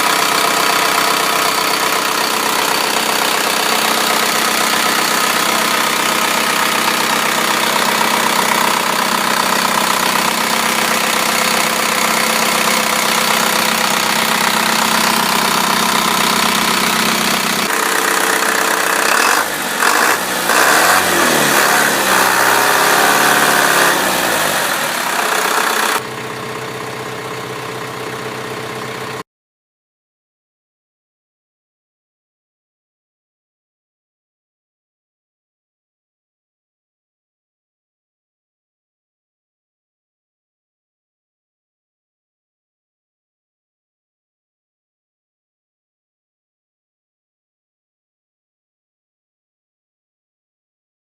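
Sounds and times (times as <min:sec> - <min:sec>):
truck engine idling: 0:00.0 - 0:29.2.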